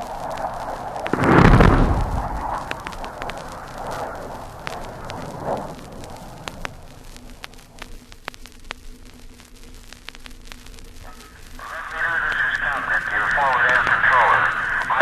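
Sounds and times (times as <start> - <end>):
explosion rumble: 0.0 - 7.9
vinyl clicks and pops: 0.0 - 15.0
vinyl hiss: 0.0 - 15.0.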